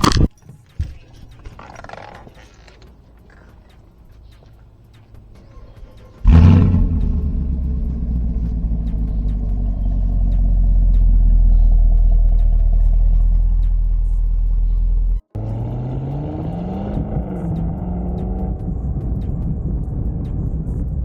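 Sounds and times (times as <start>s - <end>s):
car engine starting and idling: 0.9s - 21.0s.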